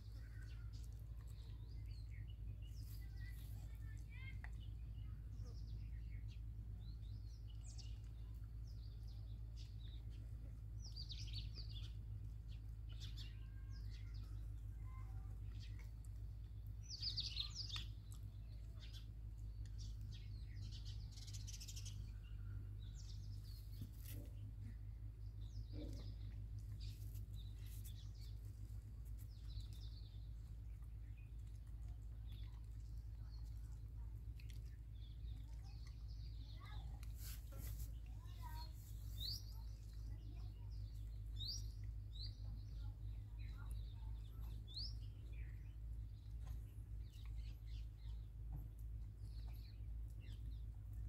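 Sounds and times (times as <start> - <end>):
steady low hum: 0.0 - 51.0
birds chirping: 10.8 - 51.0.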